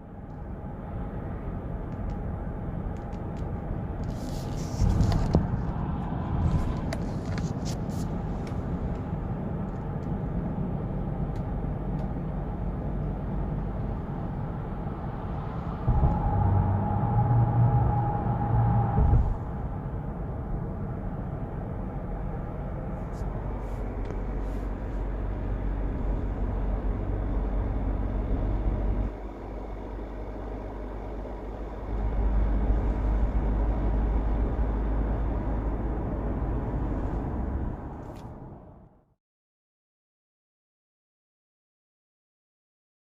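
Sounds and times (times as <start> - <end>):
diesel engine rumbling: 0.0 - 39.0
steady whine: 14.2 - 33.5.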